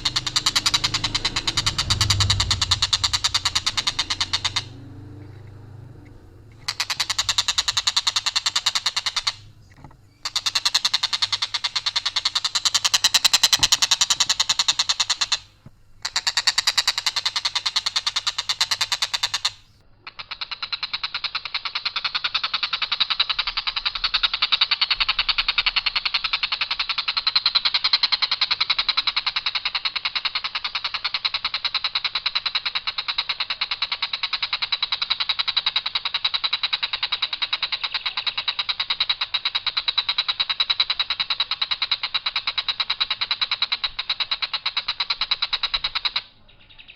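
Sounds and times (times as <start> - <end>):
kingfisher calling: 0.0 - 21.5, 32.8 - 46.9.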